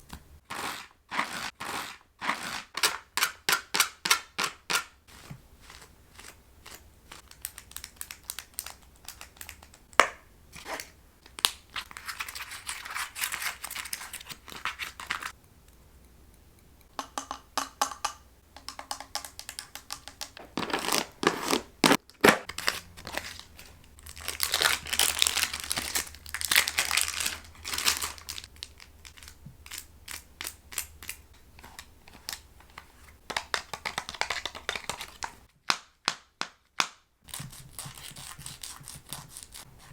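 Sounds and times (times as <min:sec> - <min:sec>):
crinkling: 0:05.1 - 0:15.4, 0:19.4 - 0:35.5
object handling: 0:08.7 - 0:17.3, 0:19.4 - 0:33.4.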